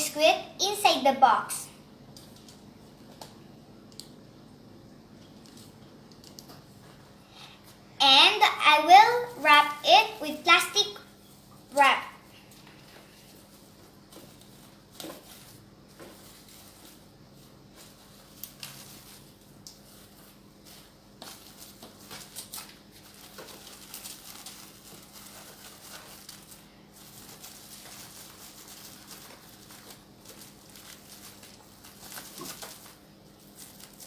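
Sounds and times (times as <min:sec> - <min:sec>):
plastic wrap crackling and rustling: 0:05.1 - 0:34.0.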